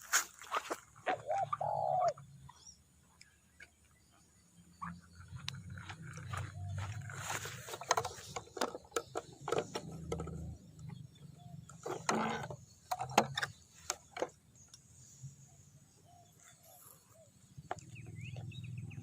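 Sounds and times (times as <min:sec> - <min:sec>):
sharp clicks and knocks: 0:07.6 - 0:11.1, 0:11.7 - 0:14.8.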